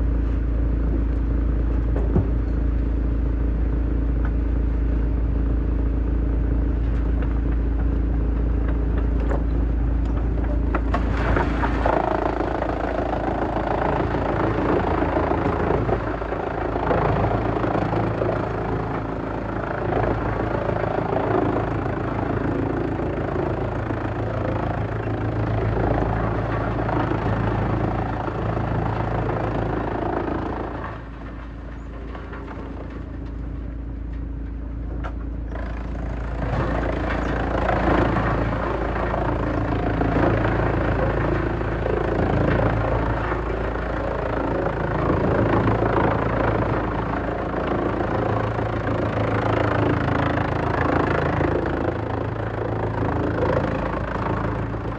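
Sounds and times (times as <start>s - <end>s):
wood chipper engine drone: 0.0s - 54.9s
wood crunching and grinding: 6.8s - 20.7s.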